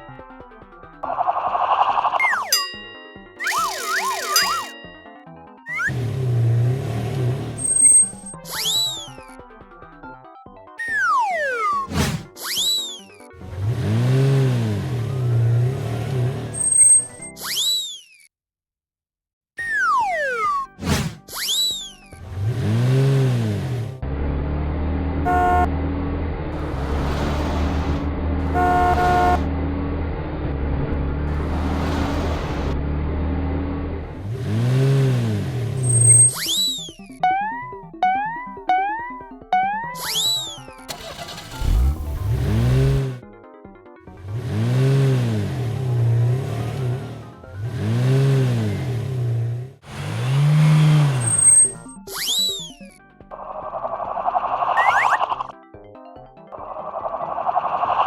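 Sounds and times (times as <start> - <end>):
cartoon engine revving: 3.4 - 4.8, 5.7 - 9.2, 10.9 - 18.0, 19.6 - 24.0, 34.1 - 43.2, 44.2 - 52.8
cartoon engine running: 3.4 - 4.9, 5.7 - 6.2, 7.4 - 9.3, 35.8 - 43.2, 49.9 - 52.9, 54.7 - 55.5
horn toots: 25.2 - 25.8, 28.4 - 29.5.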